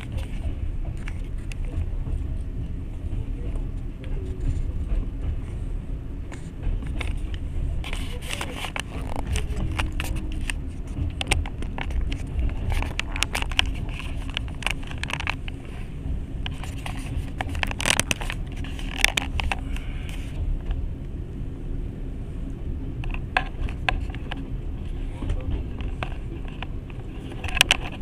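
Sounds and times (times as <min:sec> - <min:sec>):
train wheels rumbling on track: 0:00.0 - 0:28.0
clicks and rattles: 0:06.3 - 0:15.8, 0:16.4 - 0:20.8, 0:23.0 - 0:28.0.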